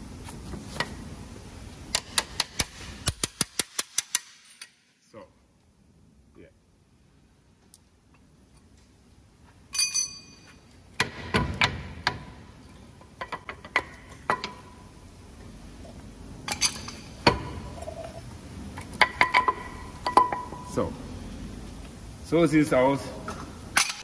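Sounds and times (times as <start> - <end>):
metal brake parts clinking: 9.7 - 10.8, 16.5 - 17.1.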